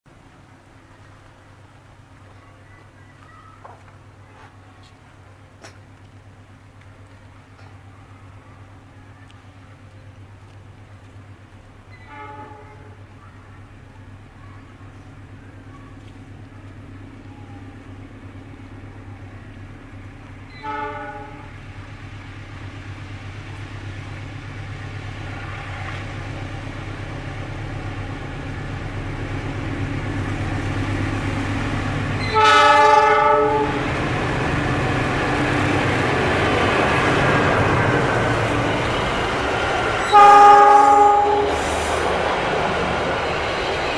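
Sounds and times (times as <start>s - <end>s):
diesel locomotive engine running: 0.1s - 43.9s
rumble of train wheels: 0.1s - 43.9s
train horn blasts: 12.0s - 13.0s, 20.5s - 21.6s, 32.2s - 33.9s, 40.0s - 41.9s.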